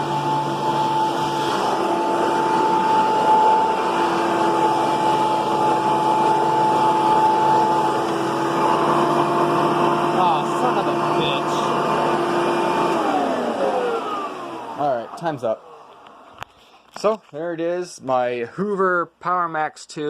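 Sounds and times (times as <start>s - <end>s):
vacuum cleaner running: 0.0s - 16.4s.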